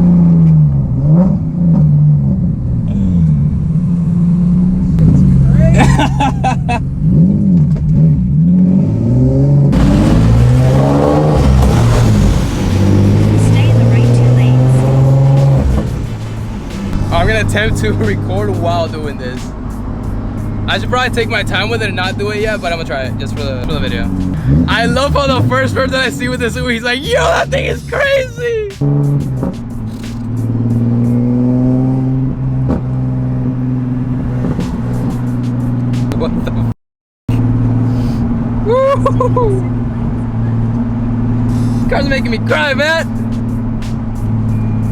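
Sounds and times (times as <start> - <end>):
car engine accelerating: 0.0 - 36.7, 37.3 - 44.9
turbo hissing rush: 9.8 - 22.6.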